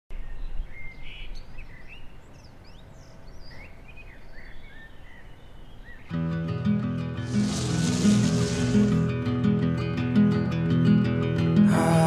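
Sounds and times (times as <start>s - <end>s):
songbirds chirping and whistling: 0.1s - 6.2s.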